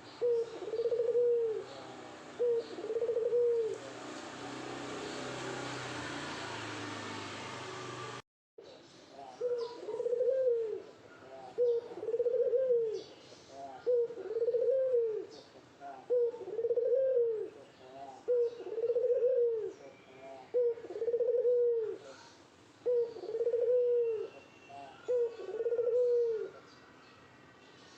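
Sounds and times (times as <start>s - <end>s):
dove cooing: 0.0s - 3.8s, 9.3s - 26.6s.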